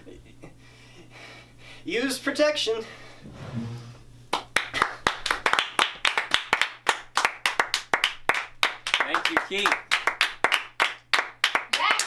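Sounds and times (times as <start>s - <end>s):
people clapping: 4.3s - 12.0s.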